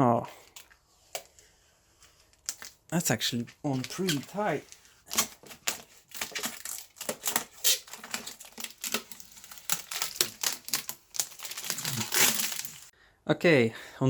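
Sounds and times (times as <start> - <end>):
plastic film peeling crackle: 2.3 - 12.9.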